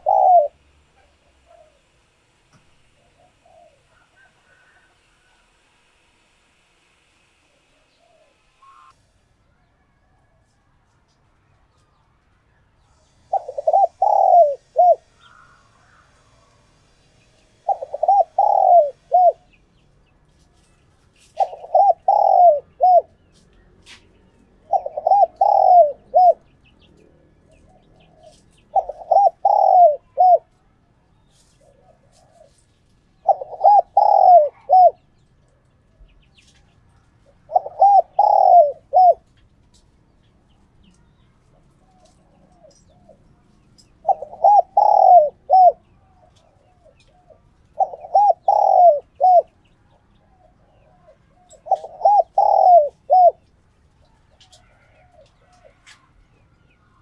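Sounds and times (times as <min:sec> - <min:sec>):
dove cooing: 0:00.0 - 0:02.0, 0:02.8 - 0:05.5, 0:07.8 - 0:08.9, 0:13.0 - 0:16.1, 0:17.5 - 0:19.6, 0:21.2 - 0:23.2, 0:23.9 - 0:30.6, 0:31.5 - 0:32.6, 0:33.2 - 0:35.0, 0:37.2 - 0:39.3, 0:44.0 - 0:49.6, 0:50.3 - 0:53.5.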